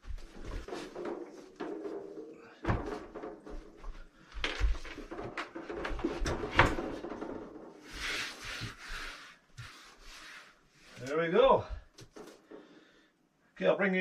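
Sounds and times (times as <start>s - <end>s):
knocks and clunks of fridge handling: 0.7s - 3.6s.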